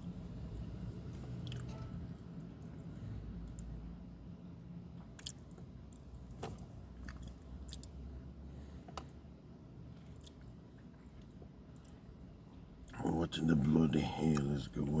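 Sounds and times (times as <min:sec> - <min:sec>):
low steady hum: 0:00.0 - 0:15.0
person chewing food: 0:01.4 - 0:01.7, 0:05.0 - 0:06.1, 0:06.9 - 0:08.1, 0:09.9 - 0:13.0.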